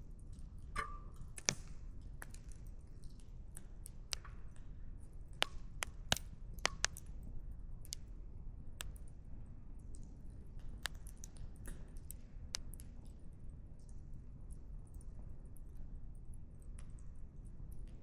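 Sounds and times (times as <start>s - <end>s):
firewood snapping and popping: 5.4s - 7.1s.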